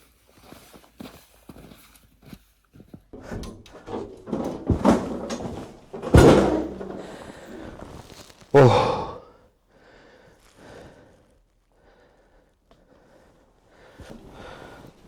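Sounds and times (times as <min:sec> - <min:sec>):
rustling and clatter: 0:02.9 - 0:08.5
loud knocks: 0:03.2 - 0:07.8.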